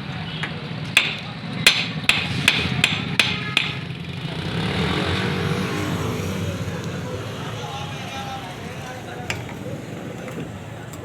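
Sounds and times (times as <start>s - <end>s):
low traffic hum: 0.0s - 11.0s
sharp hammer blows: 1.0s - 3.9s.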